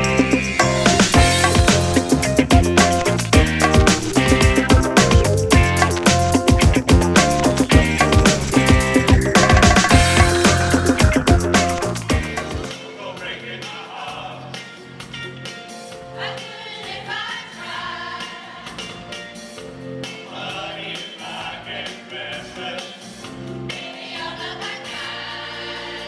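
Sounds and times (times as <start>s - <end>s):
choir singing pop song: 0.0s - 6.8s, 7.7s - 15.1s, 16.0s - 19.3s, 20.0s - 26.0s
rhythmic instrumental backing: 0.0s - 12.8s.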